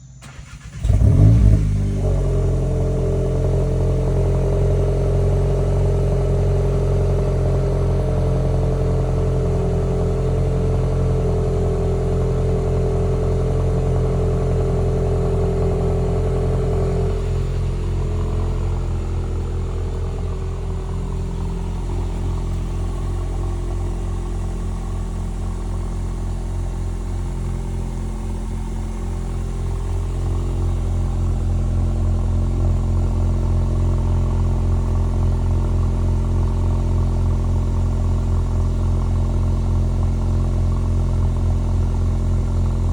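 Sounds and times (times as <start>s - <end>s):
car engine cranking: 0.0s - 2.9s
car engine idling: 0.0s - 42.9s
car engine revving: 0.2s - 36.2s.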